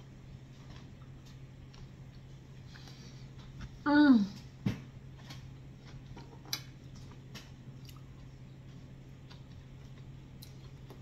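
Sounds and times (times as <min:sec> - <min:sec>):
steady low hum: 0:00.0 - 0:11.0
person chewing: 0:05.2 - 0:11.0.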